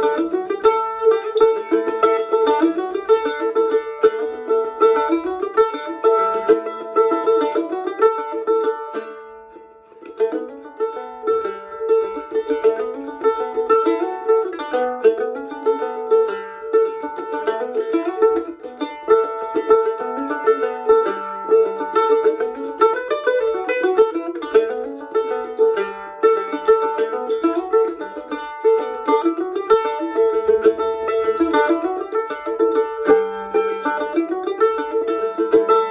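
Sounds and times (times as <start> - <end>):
plucked string instrument picking: 0.0 - 35.9.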